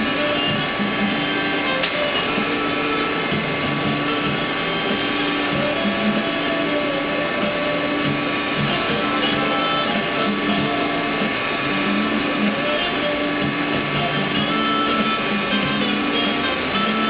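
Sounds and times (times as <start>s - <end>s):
machinery whirring hum: 0.0s - 17.0s.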